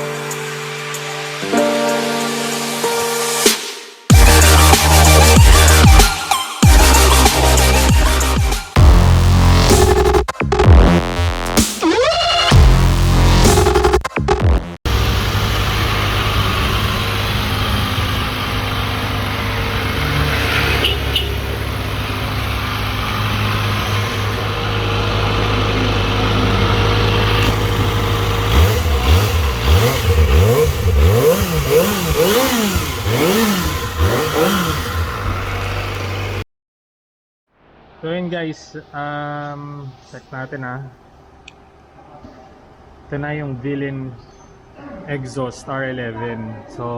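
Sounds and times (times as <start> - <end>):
motorcycle engine idling: 20.9 - 36.4.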